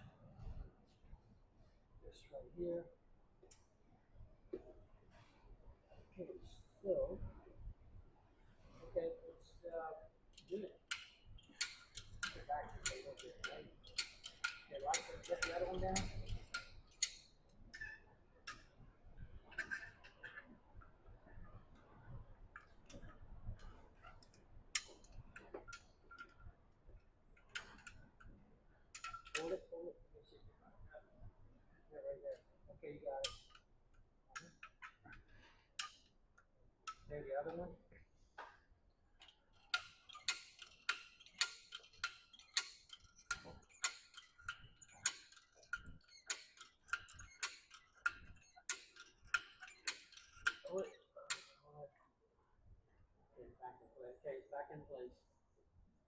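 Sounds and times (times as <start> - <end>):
faint clicks and metal taps: 10.2 - 52.1
short squeaks: 39.5 - 51.6.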